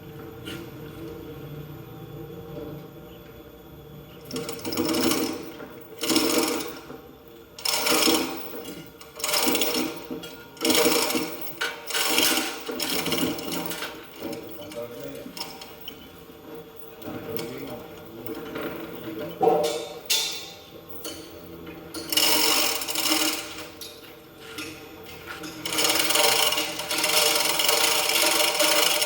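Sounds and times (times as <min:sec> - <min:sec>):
hand tool mechanical clatter: 0:07.6 - 0:16.1, 0:22.0 - 0:29.0.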